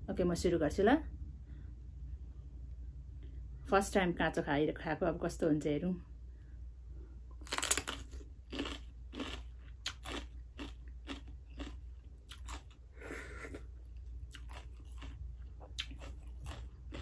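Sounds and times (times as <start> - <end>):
crunchy chewing of vegetables: 7.3 - 17.0.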